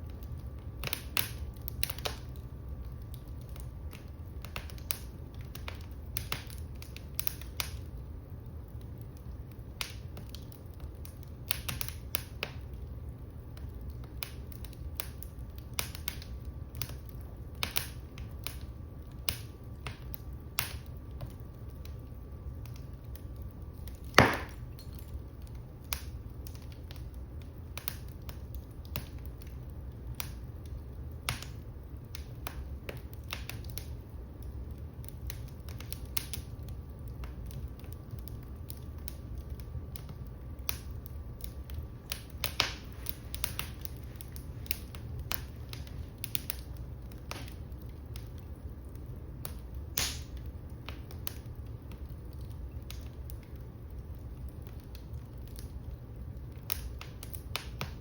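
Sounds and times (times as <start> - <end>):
low rumble of flames: 0.0 - 58.0
wood fire crackling snaps: 0.0 - 58.0
loud pop of fire: 24.1 - 24.8, 42.2 - 43.8, 49.9 - 50.4.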